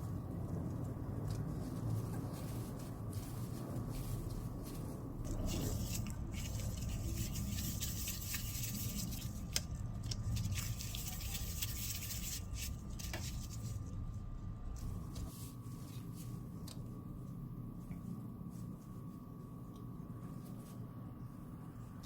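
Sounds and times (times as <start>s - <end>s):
faint steady hum: 0.0s - 22.0s
scraping and squishing of dough: 0.0s - 22.0s.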